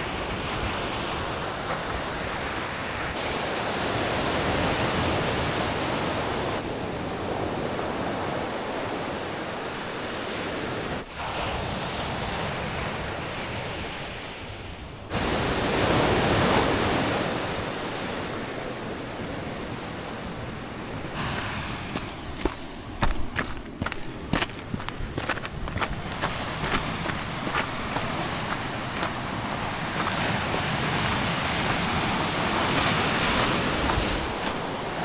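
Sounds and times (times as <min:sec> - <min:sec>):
ocean surf rushing: 0:20.4 - 0:23.1, 0:25.0 - 0:35.0.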